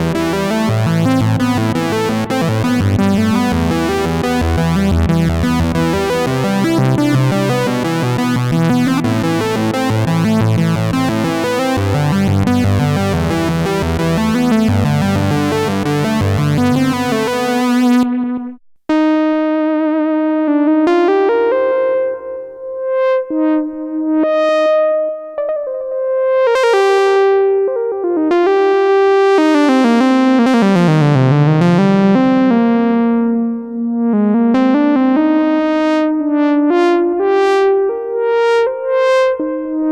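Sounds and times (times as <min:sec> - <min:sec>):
gliding synth lead line: 0:00.0 - 0:19.6
synthesizer overlapping notes: 0:00.0 - 0:39.9.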